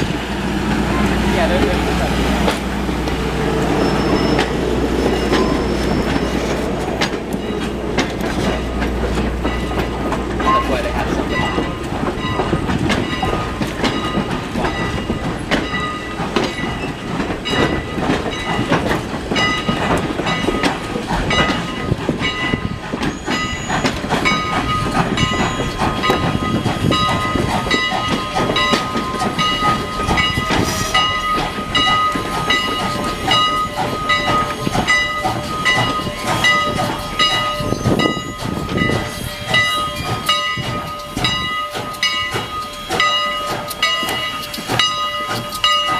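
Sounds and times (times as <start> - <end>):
train wheels clicking on rails: 0.0 - 45.9
high-pitched wheel squeal: 3.7 - 6.5.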